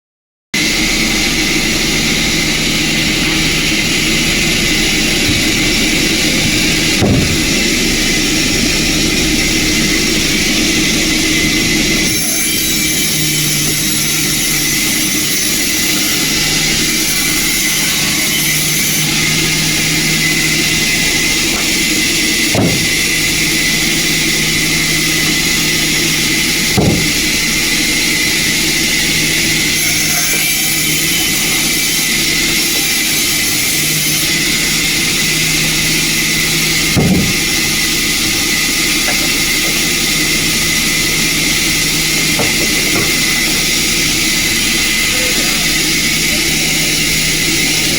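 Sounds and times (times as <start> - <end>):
sawmill machinery whining: 0.6 - 47.9
short knocks: 7.0 - 7.6, 22.5 - 23.0, 26.8 - 27.3, 37.0 - 37.4.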